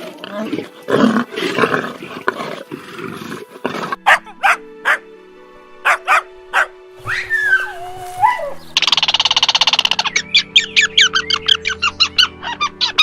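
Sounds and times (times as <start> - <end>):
lion growling and roaring: 0.0 - 4.4
background music: 0.0 - 13.0
dog barking: 4.0 - 5.1, 5.8 - 6.8.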